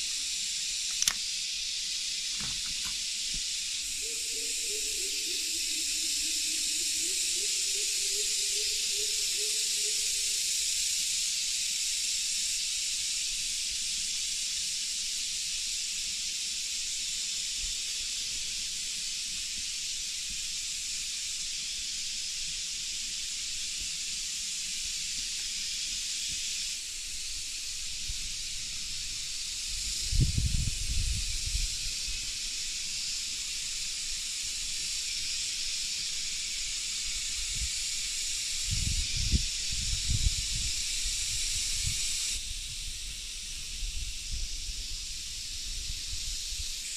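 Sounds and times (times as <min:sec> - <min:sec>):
steady rain in a forest: 0:00.0 - 0:30.1, 0:30.8 - 0:46.9.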